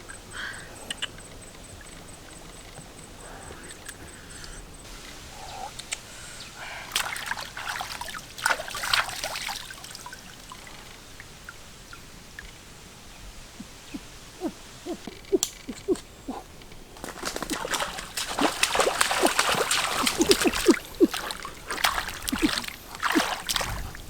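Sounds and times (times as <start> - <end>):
water splashing and sloshing: 1.0 - 24.0
water drips and plinks: 6.9 - 12.8, 13.5 - 24.0.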